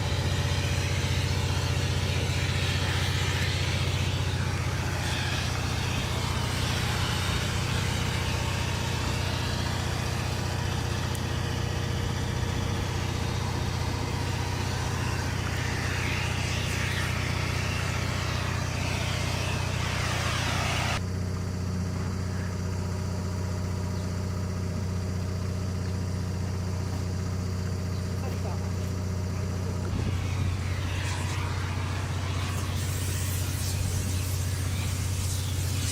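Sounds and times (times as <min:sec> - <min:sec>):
engine humming: 0:00.0 - 0:21.0, 0:29.4 - 0:35.9
loud rushing hiss: 0:00.0 - 0:21.0, 0:29.7 - 0:35.9.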